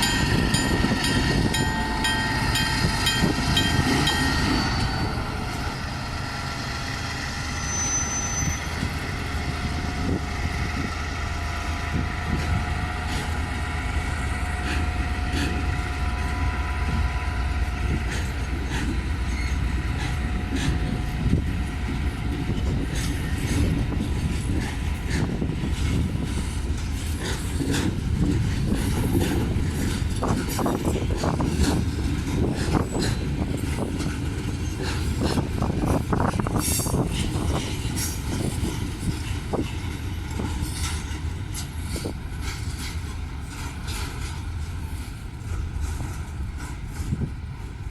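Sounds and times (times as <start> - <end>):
train rumbling: 0.0 - 47.9
faint squealing tones: 7.4 - 9.0
wheels clicking over rail joints: 17.8 - 47.9.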